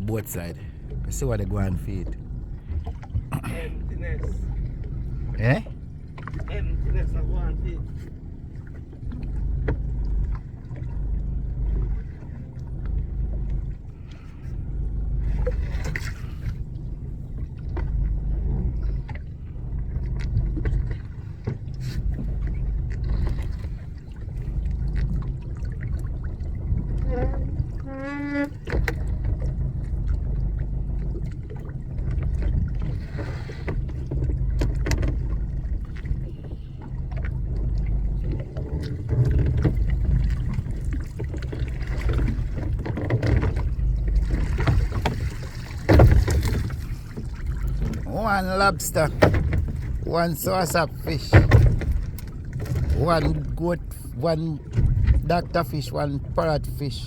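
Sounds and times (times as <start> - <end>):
sea noise: 0.0 - 57.0
knocks on boat: 32.2 - 36.2, 37.2 - 53.5, 54.6 - 55.4.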